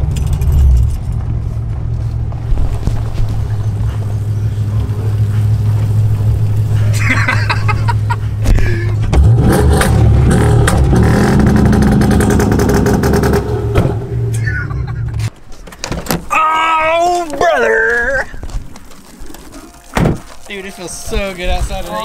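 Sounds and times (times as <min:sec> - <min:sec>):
car engine revving: 0:00.0 - 0:15.3.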